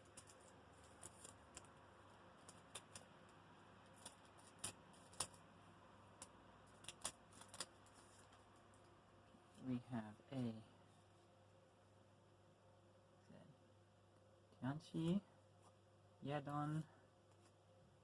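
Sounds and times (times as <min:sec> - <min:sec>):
foil pack crinkling: 0:00.0 - 0:05.5, 0:06.2 - 0:08.4.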